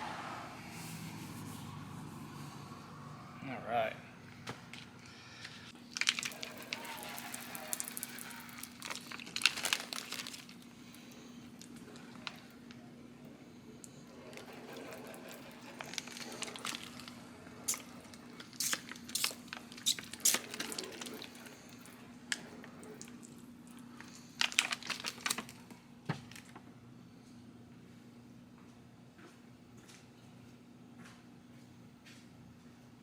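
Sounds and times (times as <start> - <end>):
wrapping crinkling: 5.9 - 12.8, 14.3 - 23.3, 23.9 - 26.6.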